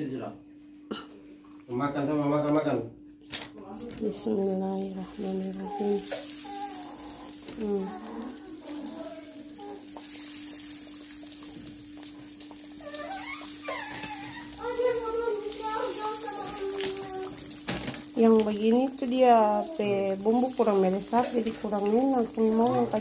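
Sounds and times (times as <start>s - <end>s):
background voices: 4.0s - 10.1s
chicken sizzling in hot oil: 5.1s - 23.0s.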